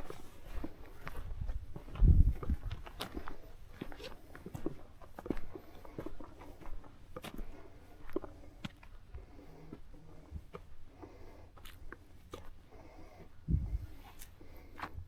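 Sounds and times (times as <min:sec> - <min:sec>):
footsteps on a trail: 0:00.0 - 0:15.0.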